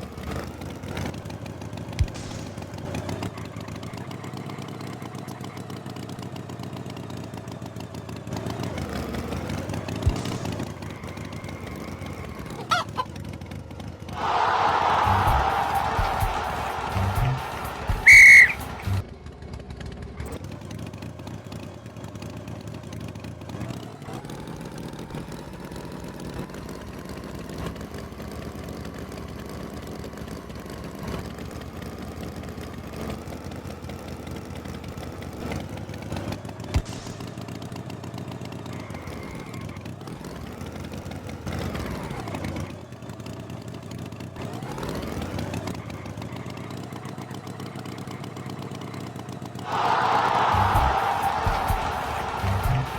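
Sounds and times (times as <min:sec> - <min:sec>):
tractor engine running: 0:00.0 - 0:12.5.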